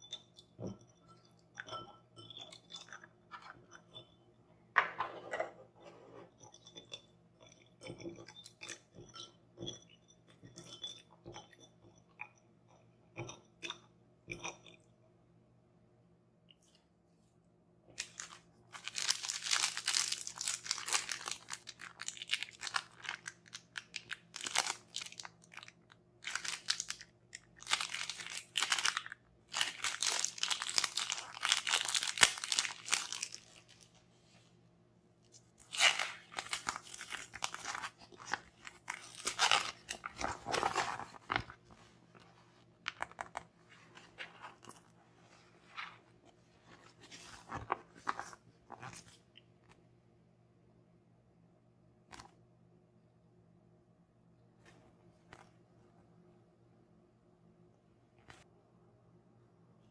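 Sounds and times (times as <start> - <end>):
crinkling toy packaging: 18.0 - 34.0, 35.6 - 41.6.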